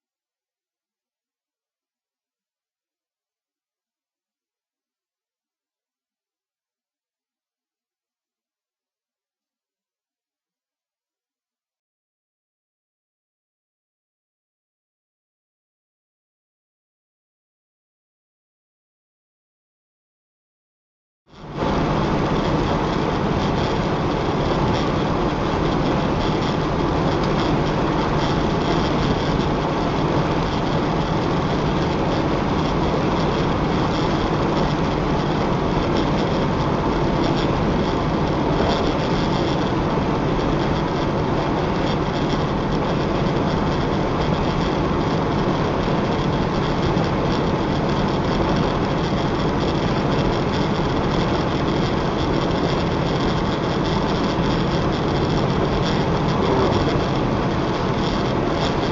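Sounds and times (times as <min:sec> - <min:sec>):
vehicle engine and road noise: 0:21.3 - 0:58.9.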